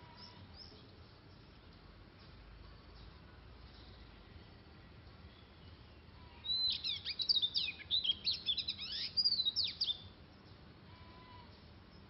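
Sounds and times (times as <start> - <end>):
bird singing whistled notes: 5.3 - 10.2.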